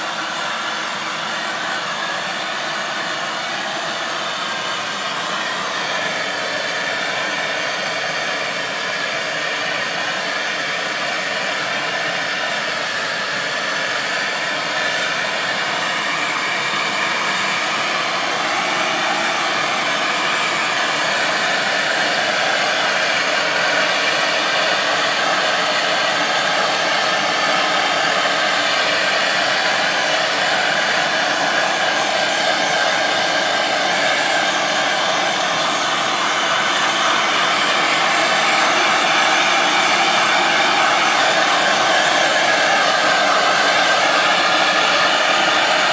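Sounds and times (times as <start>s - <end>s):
gas torch hissing: 12.6s - 45.9s.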